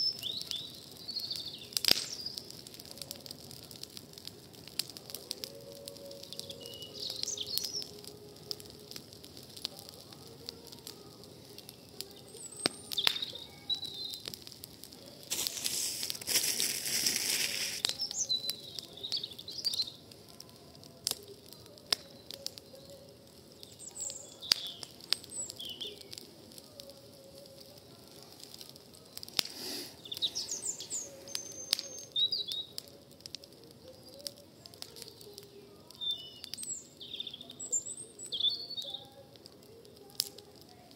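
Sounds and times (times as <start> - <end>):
campfire crackling and popping: 0.0 - 40.9
small birds chirping: 0.0 - 40.9
rushing hiss: 15.2 - 17.9, 29.3 - 31.5.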